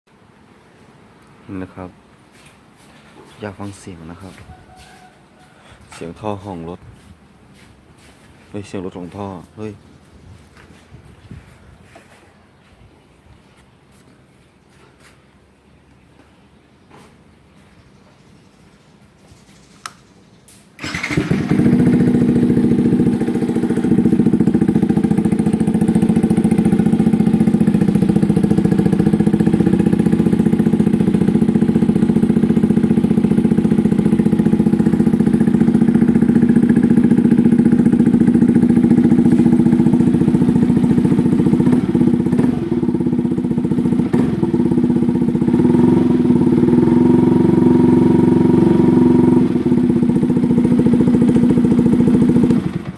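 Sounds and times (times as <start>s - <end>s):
motorcycle engine starting and idling: 19.5s - 52.9s.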